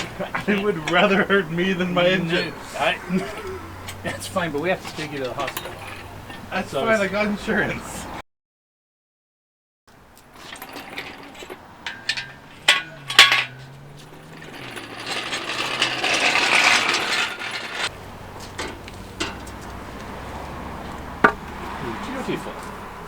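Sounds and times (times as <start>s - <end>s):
hoist chain clinking and rattling: 4.6s - 6.5s, 10.1s - 19.6s.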